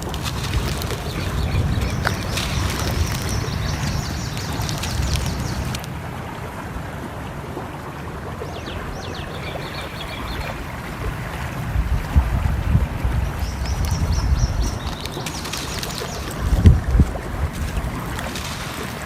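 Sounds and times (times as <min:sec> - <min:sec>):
small birds chirping: 0:00.0 - 0:05.8, 0:08.4 - 0:11.2, 0:13.2 - 0:18.6
sharp crackles: 0:00.0 - 0:06.0, 0:13.3 - 0:19.0
running water: 0:00.0 - 0:19.0
wind: 0:00.0 - 0:19.0.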